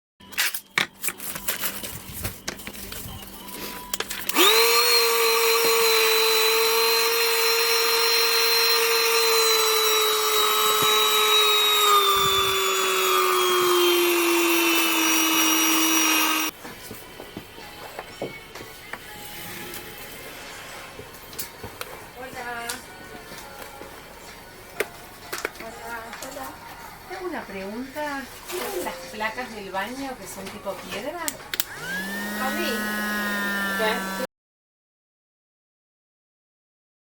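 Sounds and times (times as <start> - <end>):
handheld vacuum motor whine: 3.9 - 16.6, 31.6 - 34.3.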